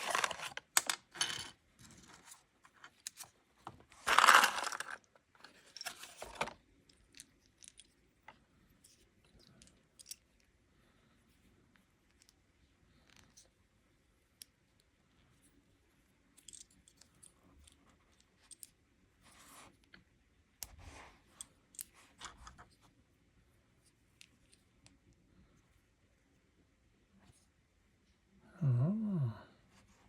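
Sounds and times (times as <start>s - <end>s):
package clicks and rustles: 0.0s - 1.1s, 3.9s - 6.6s.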